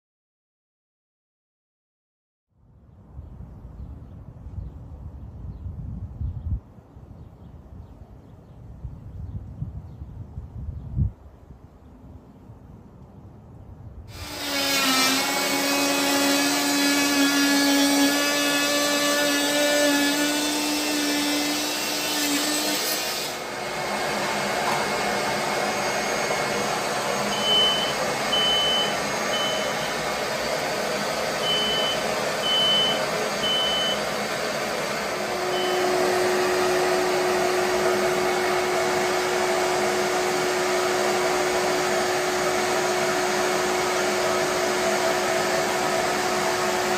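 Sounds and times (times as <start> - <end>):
vacuum motor humming: 14.1 - 46.9
short high beeps: 27.3 - 29.9, 31.4 - 34.0, 35.5 - 35.9.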